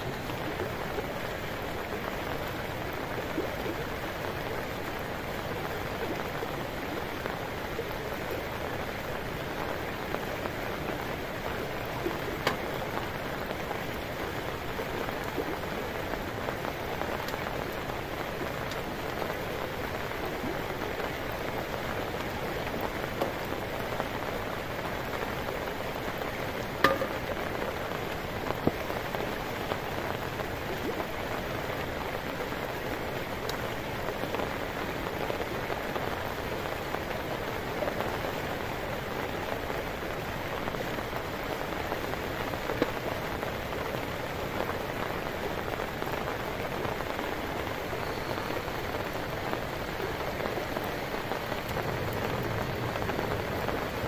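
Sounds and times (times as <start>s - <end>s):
heavy rain falling: 0.0s - 54.0s
short sharp knocks: 26.8s - 27.3s.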